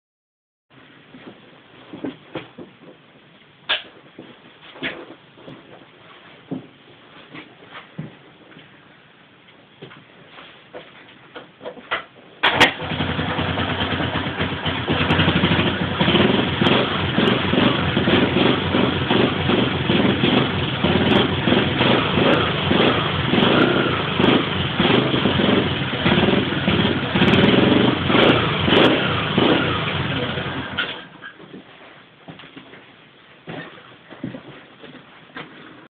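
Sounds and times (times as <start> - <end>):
motorcycle engine revving: 12.5 - 31.0.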